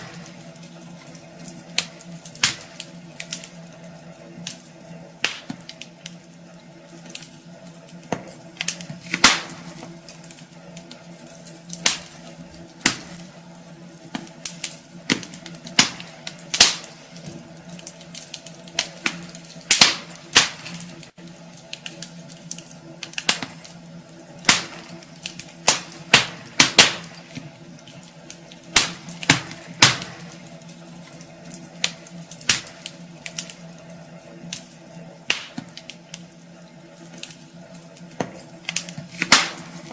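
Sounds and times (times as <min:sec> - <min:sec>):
steady low hum: 0:00.0 - 0:39.9
wood fire crackling: 0:00.0 - 0:39.9.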